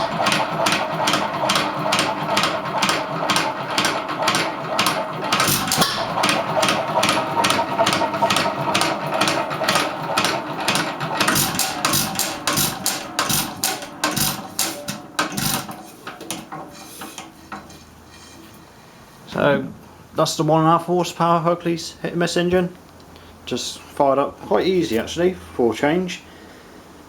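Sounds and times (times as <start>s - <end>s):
stationary engine knocking: 0.0s - 15.8s.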